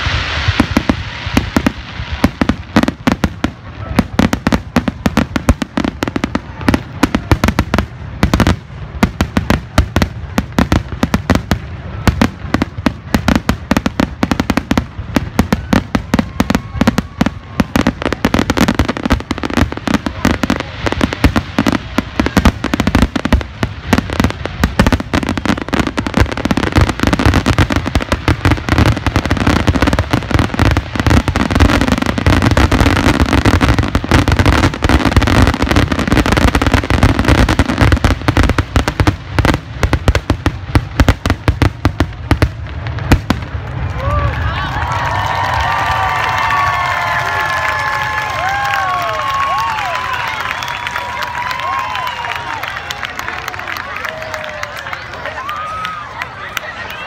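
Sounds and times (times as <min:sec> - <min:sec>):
fireworks bursting: 0:00.0 - 0:57.0.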